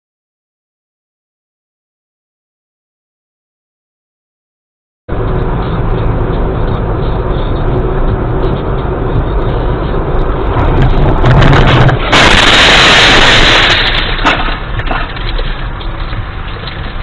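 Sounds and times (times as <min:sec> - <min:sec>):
car engine hum: 0:05.1 - 0:17.0
harsh rush of noise: 0:05.1 - 0:17.0
road noise: 0:05.1 - 0:17.0.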